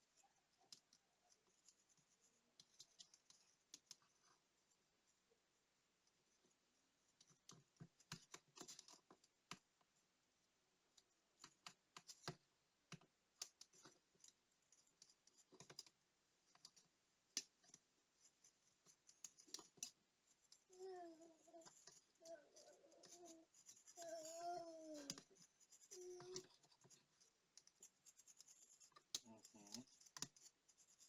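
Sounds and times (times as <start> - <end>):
small tool scratching: 17.7 - 31.0.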